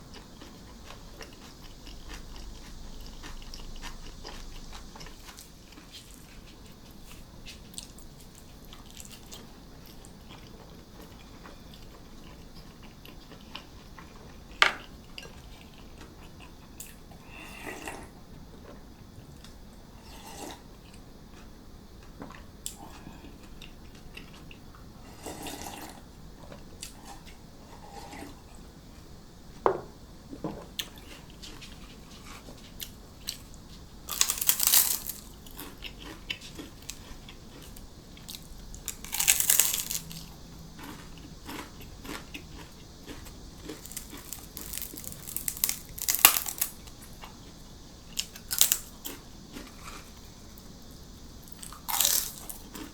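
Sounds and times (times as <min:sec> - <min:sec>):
person chewing: 0:00.1 - 0:14.1, 0:30.8 - 0:47.5, 0:48.2 - 0:50.2, 0:51.4 - 0:52.9
loud crunchy bites: 0:34.1 - 0:47.0, 0:48.2 - 0:50.1, 0:51.5 - 0:52.9.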